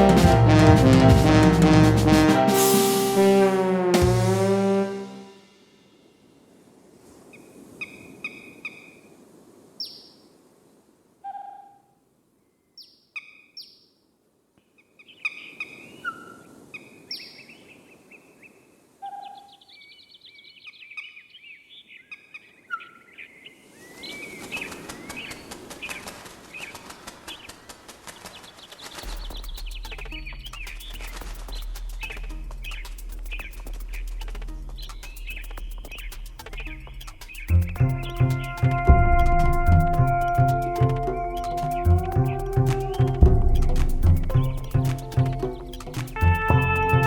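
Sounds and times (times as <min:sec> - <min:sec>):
birds calling: 0:19.1 - 0:38.6, 0:40.1 - 0:47.0.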